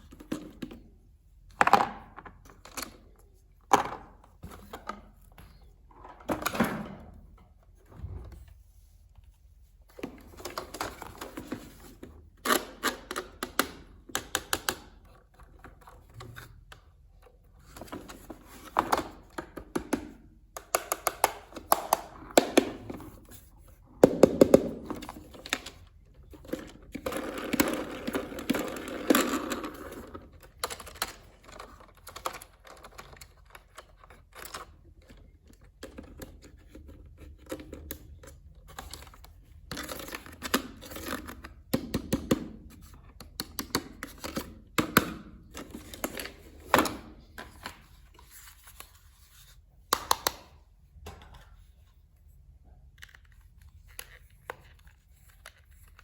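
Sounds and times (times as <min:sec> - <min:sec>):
plastic parts clicking and knocking: 0:09.9 - 0:23.4, 0:24.0 - 0:48.1.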